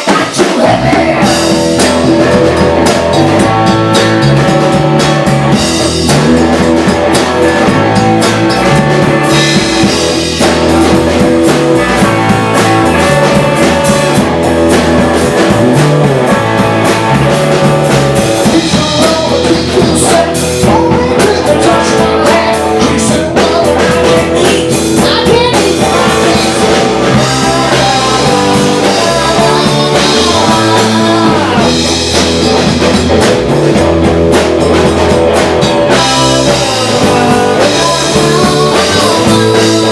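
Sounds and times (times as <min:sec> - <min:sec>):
person singing: 0:00.0 - 0:11.0, 0:18.3 - 0:32.9, 0:35.6 - 0:39.9
rock music: 0:00.0 - 0:39.9.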